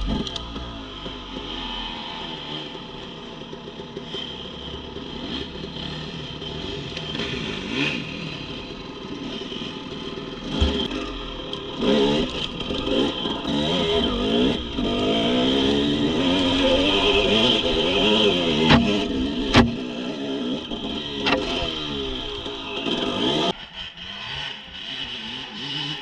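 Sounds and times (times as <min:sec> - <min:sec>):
dirt bike engine revving: 0:00.0 - 0:26.0
thump: 0:18.7 - 0:19.8.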